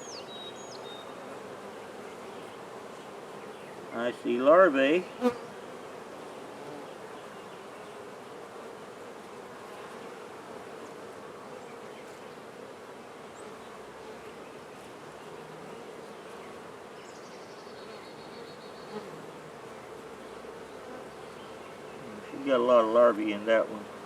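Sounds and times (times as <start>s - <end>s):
honey bees buzzing: 0.0s - 24.0s.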